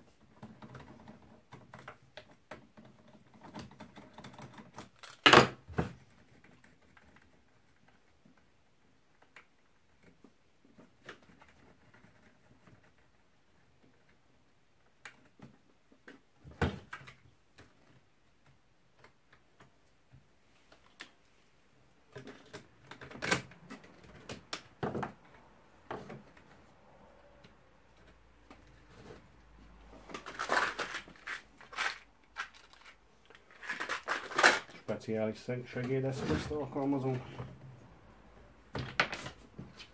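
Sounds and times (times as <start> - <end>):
tools and parts clattering: 29.9 - 35.0.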